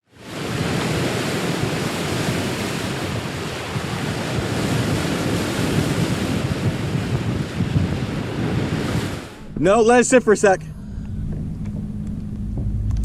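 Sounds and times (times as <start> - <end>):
sea water sloshing: 0.2 - 9.6
wind buffeting microphone: 0.2 - 13.0.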